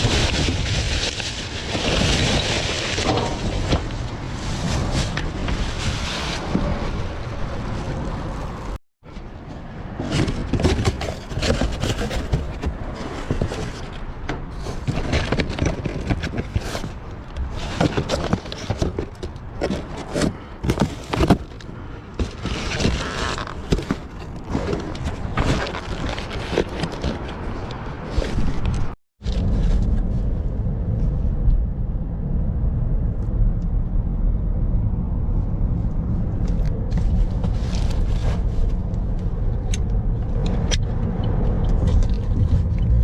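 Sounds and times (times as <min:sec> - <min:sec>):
rummaging through trash: 0:00.0 - 0:08.8, 0:09.8 - 0:29.6.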